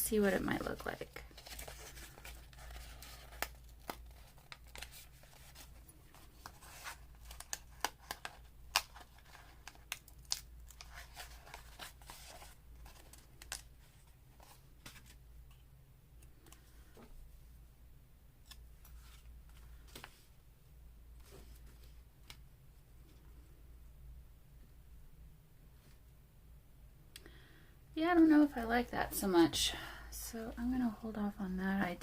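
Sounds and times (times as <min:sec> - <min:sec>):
paper rustling and crinkling: 0:00.7 - 0:15.6.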